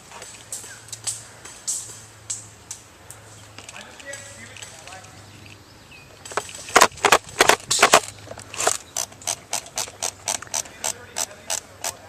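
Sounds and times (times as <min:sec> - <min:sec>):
airsoft gun shots: 0:06.7 - 0:08.0.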